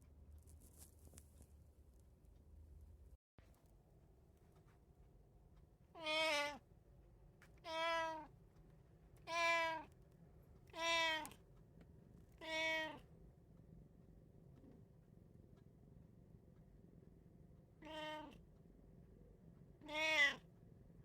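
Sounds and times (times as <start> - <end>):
cat meowing: 6.0 - 6.6, 7.6 - 8.3, 9.3 - 9.9, 10.7 - 11.4, 12.4 - 13.0, 17.8 - 18.4, 19.8 - 20.4.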